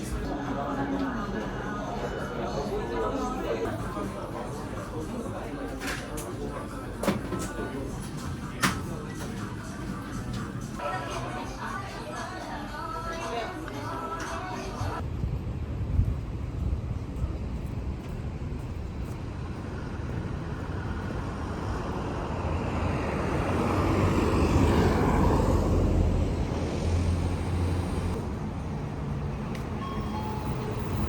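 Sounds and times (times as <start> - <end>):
road traffic rumble: 15.0 - 31.0
motor vehicle passing: 19.6 - 29.3.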